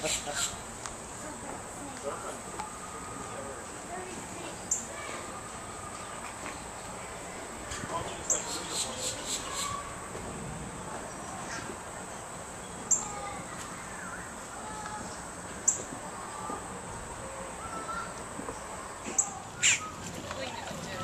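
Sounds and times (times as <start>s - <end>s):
faint bird calls: 8.1s - 10.0s, 12.8s - 20.2s.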